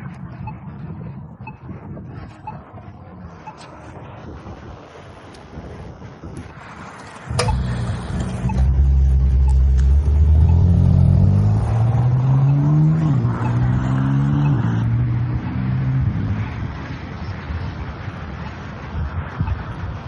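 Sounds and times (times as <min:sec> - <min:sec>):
car engine accelerating hard: 0:07.3 - 0:17.0.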